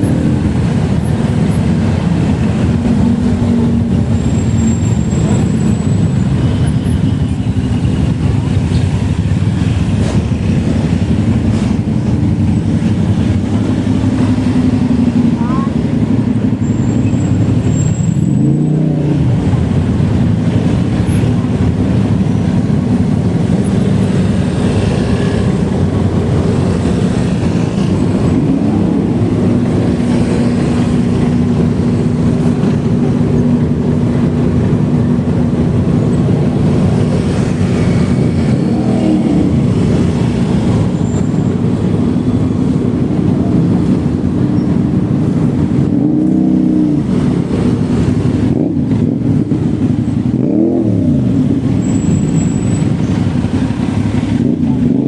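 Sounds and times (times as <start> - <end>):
motor vehicle traffic: 0.0 - 55.0
road and wind rumble: 0.0 - 55.0.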